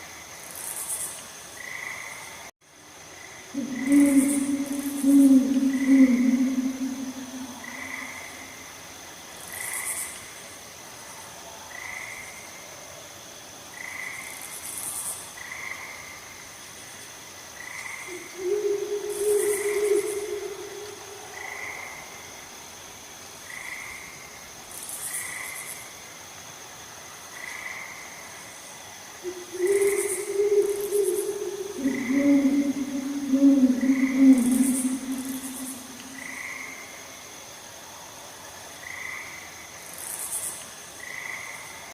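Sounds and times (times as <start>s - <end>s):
frogs chirping: 3.2s - 10.2s, 17.5s - 22.6s, 27.3s - 37.6s
low drawn-out frog call: 3.6s - 8.5s, 18.1s - 22.0s, 29.2s - 36.9s
steady high whine: 29.3s - 36.4s.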